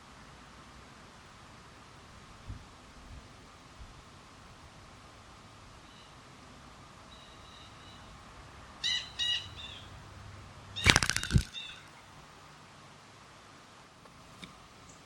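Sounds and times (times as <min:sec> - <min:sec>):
harsh bird calls: 0:10.8 - 0:12.0
wings fluttering: 0:10.8 - 0:12.0.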